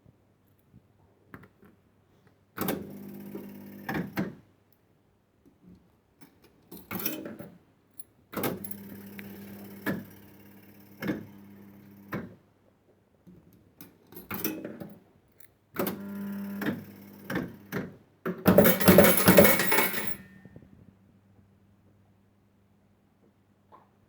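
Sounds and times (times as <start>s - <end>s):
coins clattering: 18.5s - 20.2s.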